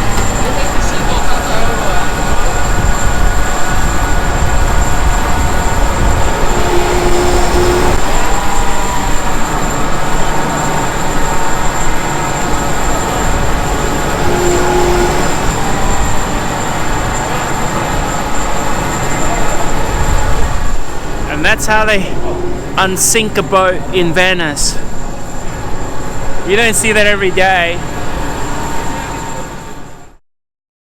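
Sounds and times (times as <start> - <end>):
brief steady tones: 0.0 - 29.9
machinery rumbling: 0.0 - 30.2.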